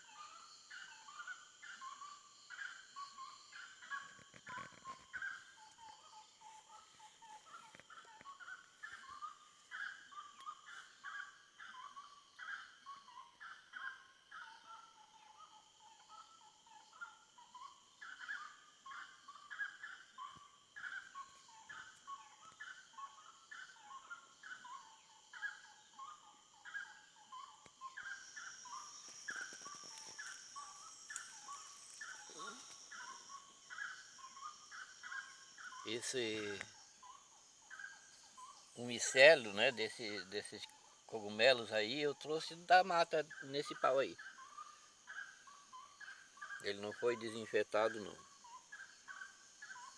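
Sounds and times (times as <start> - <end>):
high insect trill: 26.6 - 49.9
higher insect tone: 27.2 - 49.9
short animal calls: 28.3 - 37.8.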